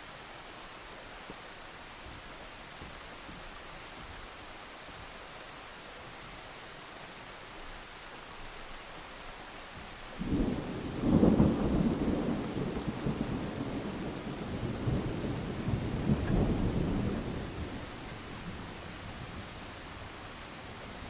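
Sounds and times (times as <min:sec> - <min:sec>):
steady rain hiss: 0:00.0 - 0:21.0
thunderclap and rumbling thunder: 0:10.2 - 0:21.0.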